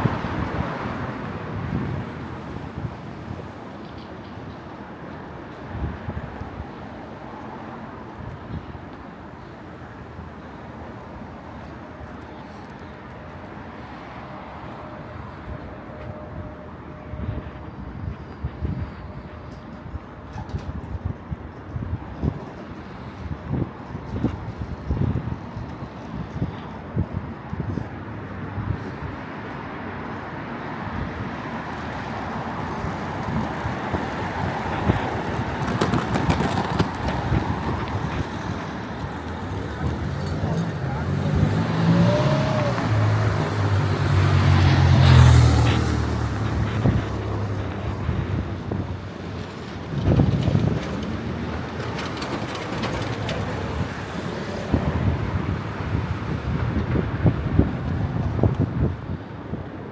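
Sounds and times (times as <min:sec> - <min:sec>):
wind buffeting microphone: 0:00.0 - 0:04.6, 0:17.1 - 0:59.9
vehicle passing: 0:32.3 - 0:57.6.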